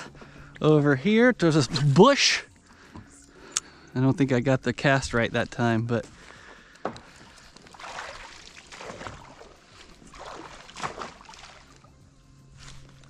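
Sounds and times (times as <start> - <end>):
water sloshing and lapping: 5.4 - 13.0.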